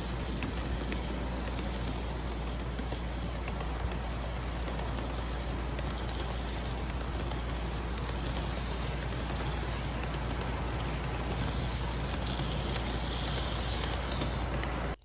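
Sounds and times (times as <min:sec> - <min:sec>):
model train motor hum: 0:00.0 - 0:15.0
wheels clicking on track: 0:00.0 - 0:15.0.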